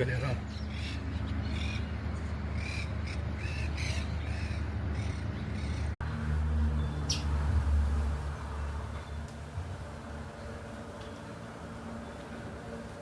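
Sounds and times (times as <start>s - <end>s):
birds calling: 0.0s - 6.0s, 6.8s - 7.4s.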